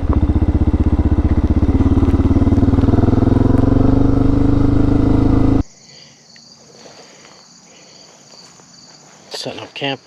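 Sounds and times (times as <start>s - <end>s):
single-cylinder engine running: 0.0s - 5.6s
insects chirping faintly: 0.0s - 10.0s.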